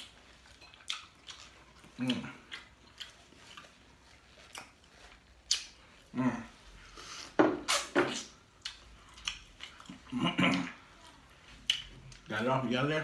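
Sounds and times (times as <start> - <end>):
wet mouth smacks: 5.5 - 5.7.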